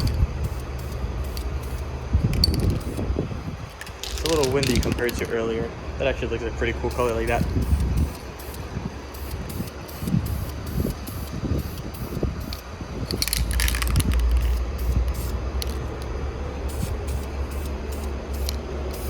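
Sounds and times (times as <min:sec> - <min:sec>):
spray paint can hissing: 0:00.0 - 0:03.1, 0:03.7 - 0:05.3, 0:06.9 - 0:19.0
wind buffeting microphone: 0:01.9 - 0:05.8, 0:07.3 - 0:17.1.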